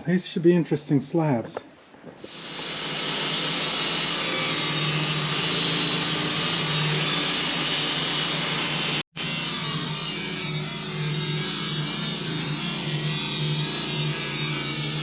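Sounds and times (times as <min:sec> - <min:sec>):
saw blade hissing through wood: 0:02.3 - 0:09.5
sawmill engine hum: 0:02.3 - 0:15.0.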